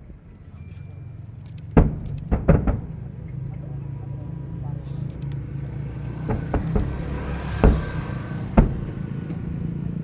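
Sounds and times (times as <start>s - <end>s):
fireworks bursting: 1.6s - 3.4s.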